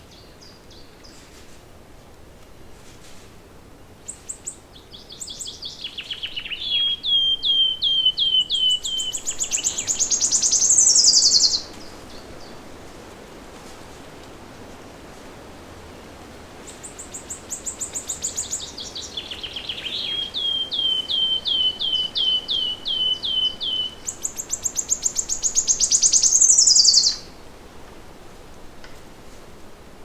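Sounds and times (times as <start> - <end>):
songbird singing: 0.0 - 1.3, 4.0 - 12.8, 16.6 - 27.5
faint steady hiss: 0.0 - 30.0.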